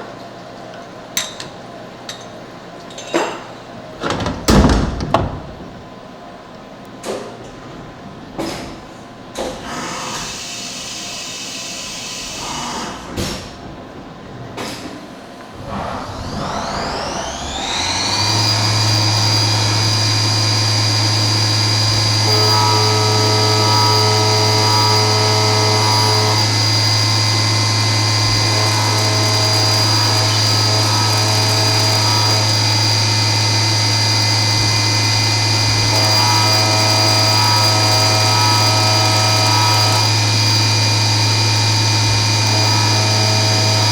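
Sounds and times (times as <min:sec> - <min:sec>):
knocks and clatters: 0:01.2 - 0:06.0
spindle whining: 0:15.6 - 0:43.9.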